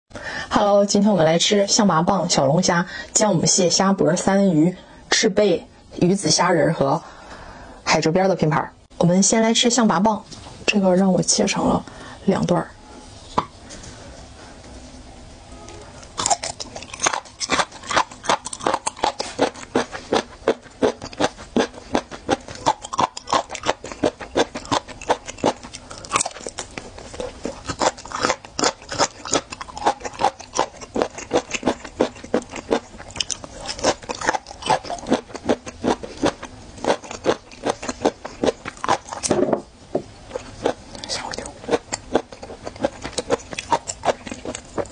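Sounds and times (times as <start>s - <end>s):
wet crunchy chewing: 16.0s - 39.3s, 40.3s - 44.9s.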